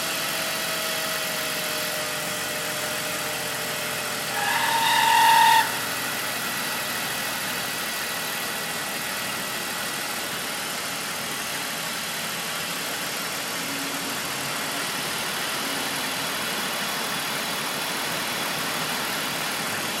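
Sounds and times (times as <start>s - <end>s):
car running steadily: 0.0s - 20.0s
high-pitched tyre squeal: 0.3s - 8.5s.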